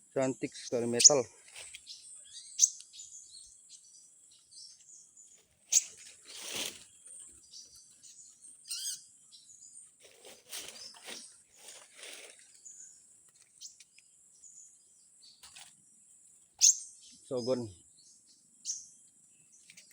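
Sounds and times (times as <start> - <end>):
small birds chirping: 0.0 - 19.9
handling rustle: 5.8 - 7.3, 10.0 - 12.6.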